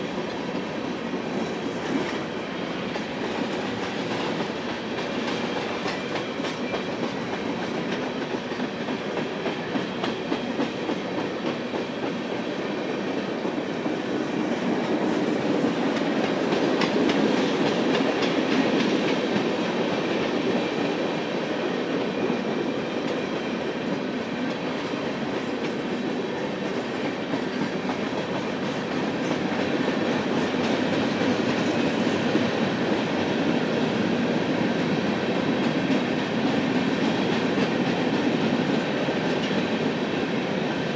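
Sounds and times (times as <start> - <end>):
freight train rolling past: 0.0 - 40.9.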